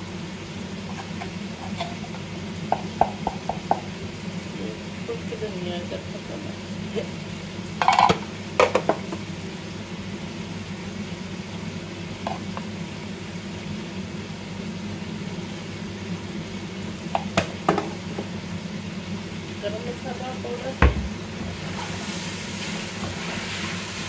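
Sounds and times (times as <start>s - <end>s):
chicken frying sizzle: 0.0s - 24.0s.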